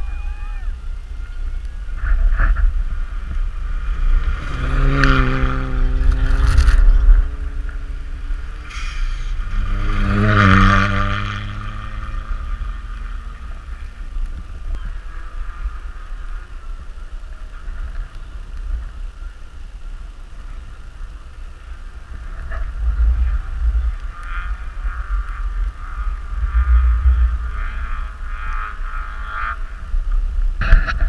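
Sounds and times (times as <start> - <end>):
low rumble: 0.0 - 31.0
car engine running: 1.8 - 18.9.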